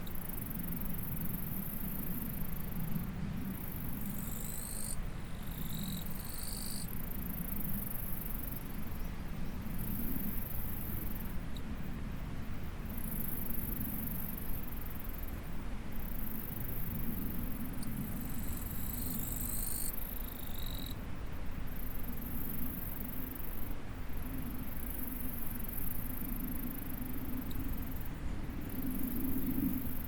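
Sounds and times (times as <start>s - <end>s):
lower insect trill: 0.0s - 9.0s, 16.0s - 21.0s
insects chirring: 3.7s - 7.0s.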